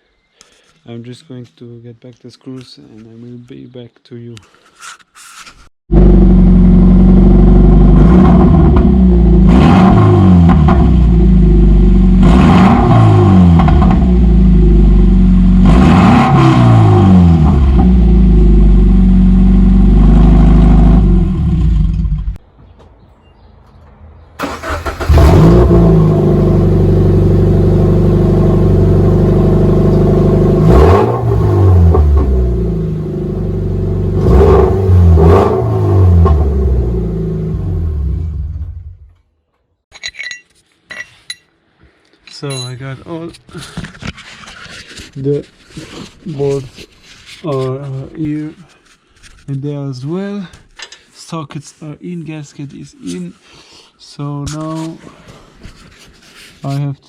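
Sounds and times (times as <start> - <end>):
car engine revving: 5.9 - 22.4, 24.4 - 39.0.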